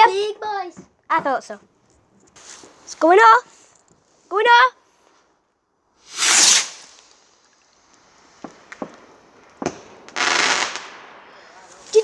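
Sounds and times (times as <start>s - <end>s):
firework hissing whoosh: 6.0s - 7.5s
faint firework pops: 6.2s - 11.0s.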